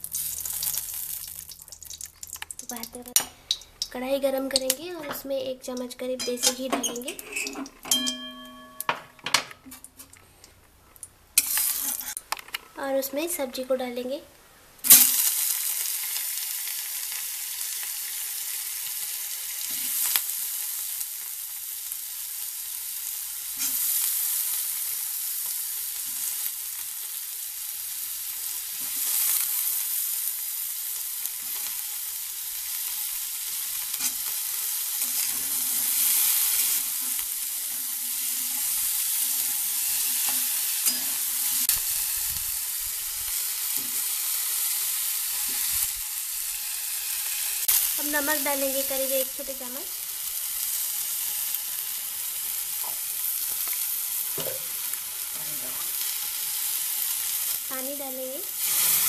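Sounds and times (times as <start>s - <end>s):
food frying sizzle: 0.0s - 14.2s, 14.8s - 59.0s
steel spatula scraping pan: 6.2s - 8.9s, 35.0s - 41.7s.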